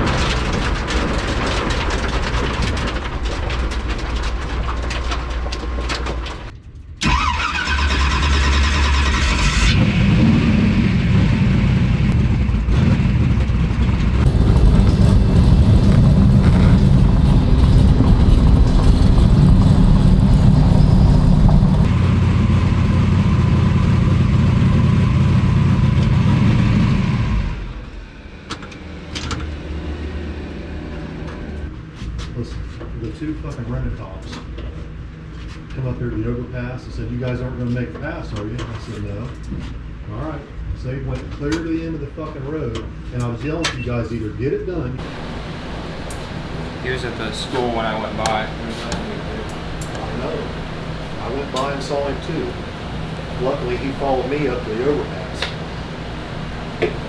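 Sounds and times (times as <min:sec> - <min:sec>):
rising turbo whine: 0:14.0 - 0:31.7, 0:45.0 - 0:57.0
car engine running: 0:14.2 - 0:26.2, 0:45.0 - 0:57.0.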